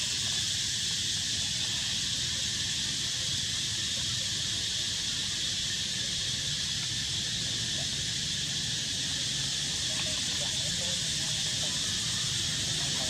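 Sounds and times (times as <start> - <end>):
high-pitched hiss: 0.0 - 13.0.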